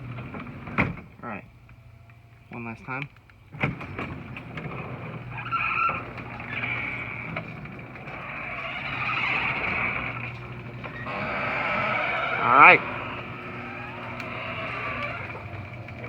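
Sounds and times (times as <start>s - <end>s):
garage door opener click: 3.6s - 16.0s
garage door opener motor hum: 3.6s - 16.0s.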